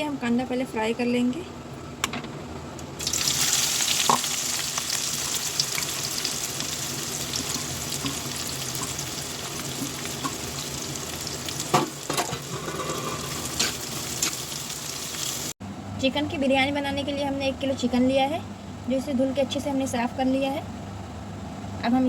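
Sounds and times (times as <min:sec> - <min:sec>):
onions sizzling in oil: 0:03.0 - 0:15.6.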